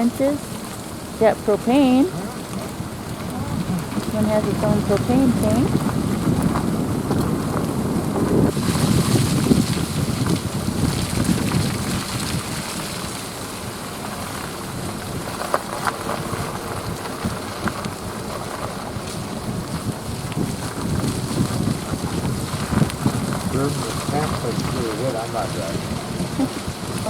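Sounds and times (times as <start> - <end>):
road and tyre noise: 0.0 - 27.0
wind rumbling on microphone: 0.0 - 27.0.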